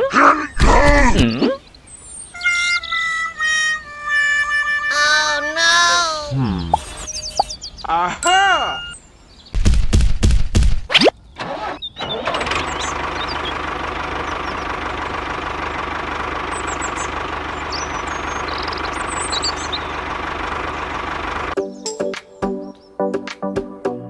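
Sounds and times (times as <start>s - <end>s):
small engine starting and running: 11.4s - 21.6s.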